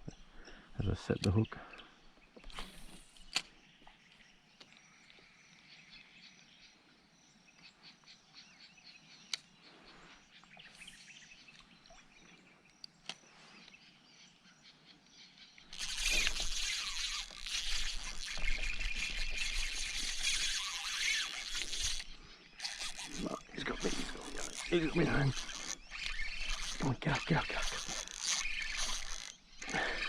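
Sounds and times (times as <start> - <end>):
distant bird calls: 0.0 - 30.0
sharp clicks: 15.7 - 30.0.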